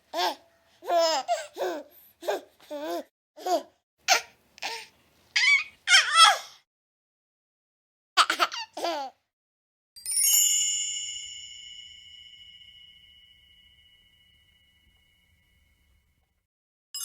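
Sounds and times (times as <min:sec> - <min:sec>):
baby laughing and squealing: 0:00.2 - 0:04.8, 0:05.4 - 0:06.5, 0:08.2 - 0:09.1
bright ringing chime: 0:10.0 - 0:16.2.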